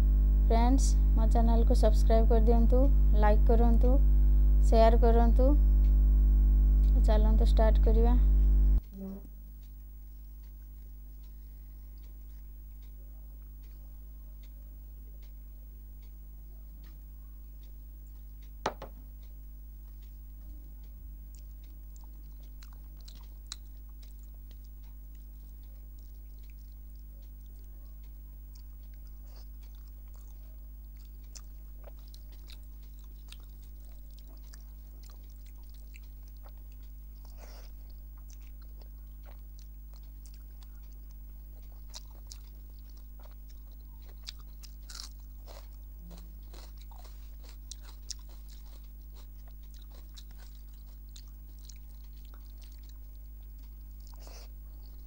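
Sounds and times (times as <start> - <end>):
steady low hum: 0.0 - 55.0
soft chewing: 1.0 - 55.0
wet smacks and clicks: 30.9 - 41.0.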